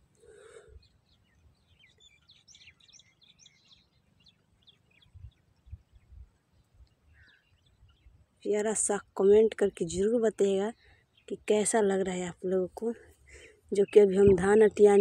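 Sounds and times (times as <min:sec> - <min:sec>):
birds chirping: 0:00.0 - 0:15.0
soft low thumps: 0:13.9 - 0:14.9.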